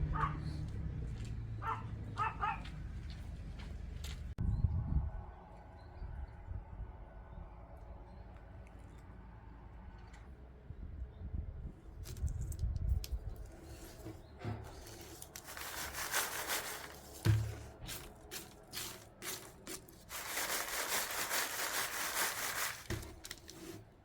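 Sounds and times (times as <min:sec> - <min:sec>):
rustling of things handled: 0:11.9 - 0:24.0.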